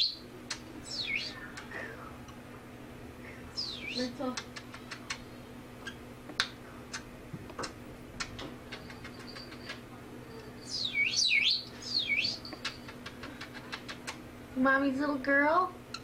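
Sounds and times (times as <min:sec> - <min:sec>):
pet bird swooping chirps: 0:10.7 - 0:13.0.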